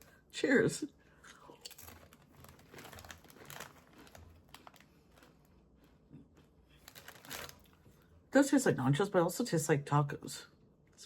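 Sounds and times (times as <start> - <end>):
crunchy chip being chewed: 1.3 - 7.8.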